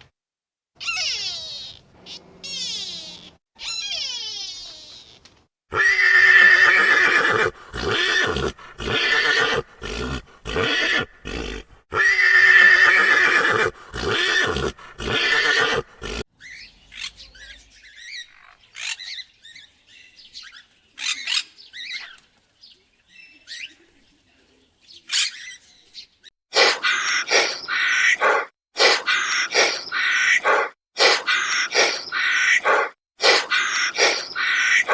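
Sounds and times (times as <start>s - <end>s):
large animal calling loudly: 5.7s - 16.2s, 26.6s - 34.9s.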